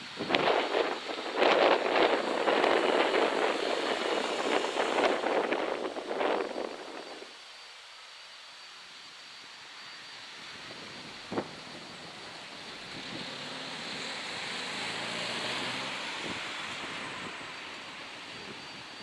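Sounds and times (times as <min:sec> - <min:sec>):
vehicle passing: 0:13.2 - 0:17.4.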